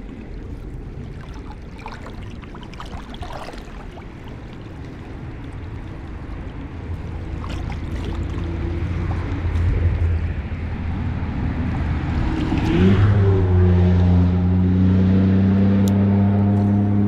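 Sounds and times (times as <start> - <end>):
engine running: 4.4 - 17.0.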